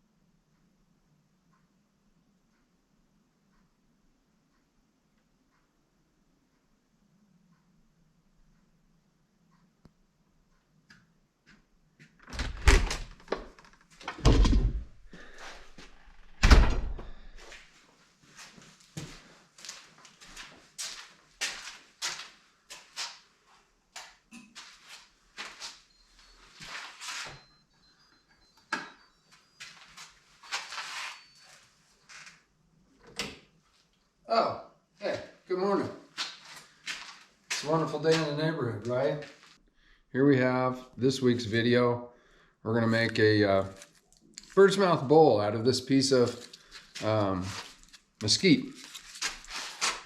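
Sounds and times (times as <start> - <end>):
rustling and scraping of handled objects: 17.4 - 27.6, 29.3 - 32.5, 36.0 - 39.6, 42.9 - 44.8, 46.0 - 50.0.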